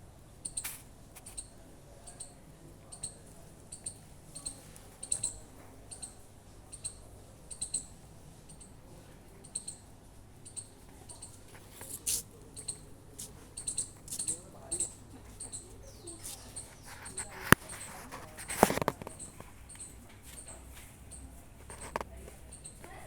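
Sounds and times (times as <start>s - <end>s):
sharp click: 0.4s - 1.5s.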